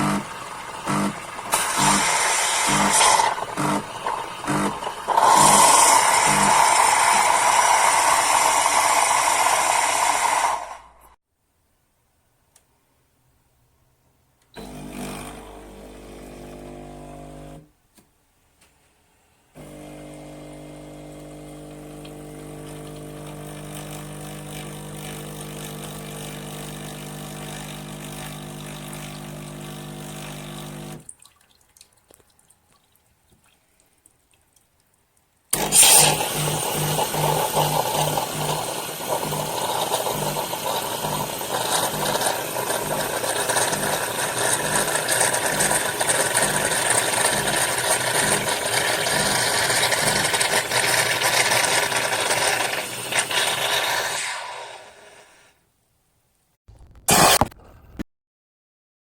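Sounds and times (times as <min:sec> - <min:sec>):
espresso machine pump humming: 0:00.0 - 0:10.3, 0:14.6 - 0:17.6, 0:19.6 - 0:31.0, 0:35.6 - 0:54.9
steam hissing: 0:00.1 - 0:10.9, 0:35.6 - 0:45.6, 0:48.3 - 0:55.6.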